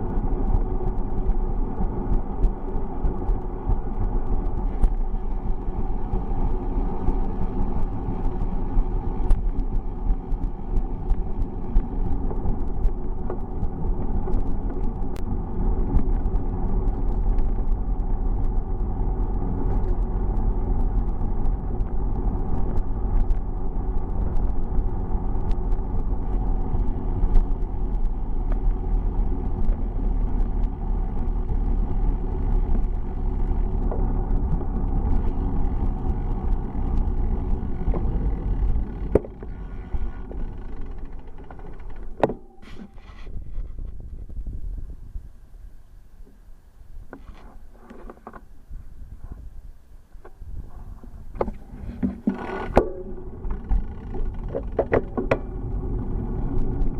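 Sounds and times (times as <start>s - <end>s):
small clicks and rattles: 0.0s - 43.0s, 51.4s - 56.9s
bicycle tyre noise: 0.0s - 56.9s
wind rumble: 0.0s - 56.9s.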